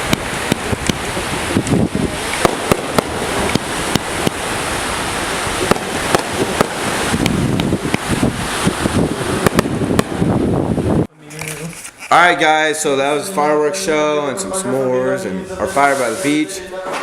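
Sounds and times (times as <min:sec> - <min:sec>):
fireworks cracking and popping: 0:00.0 - 0:10.5
surf rushing: 0:00.0 - 0:11.1
wind: 0:00.0 - 0:17.0.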